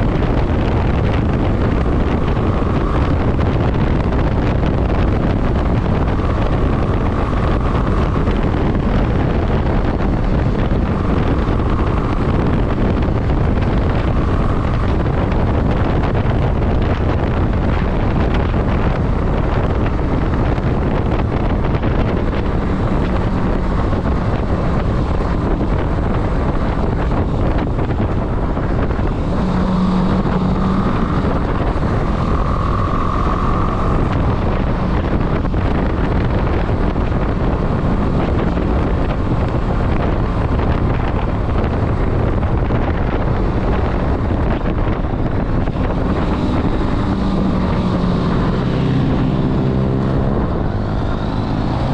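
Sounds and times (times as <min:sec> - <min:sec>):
motorcycle engine running: 0:00.0 - 0:51.9
wind noise on microphone: 0:00.0 - 0:51.9.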